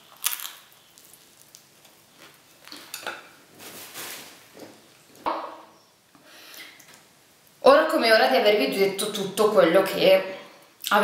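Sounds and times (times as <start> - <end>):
crunchy chewing of pizza crust: 0.0 - 2.9.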